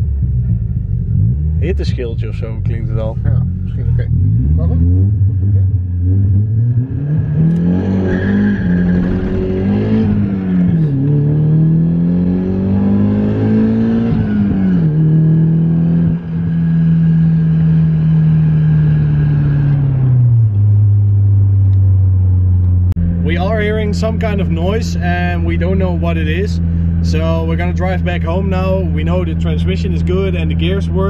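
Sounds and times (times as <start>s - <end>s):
car engine revving through gears: 0.4s - 21.8s.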